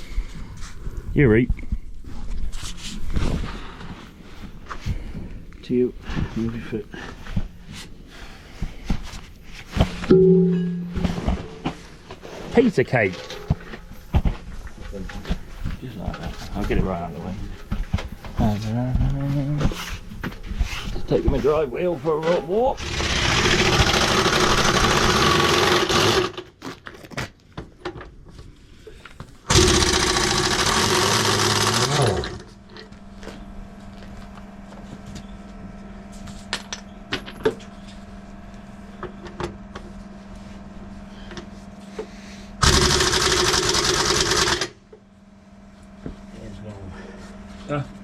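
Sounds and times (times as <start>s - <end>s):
steady machine hum: 3.0s - 26.5s, 28.6s - 48.0s
loud machinery running: 22.8s - 26.4s, 29.5s - 32.6s, 42.6s - 44.8s.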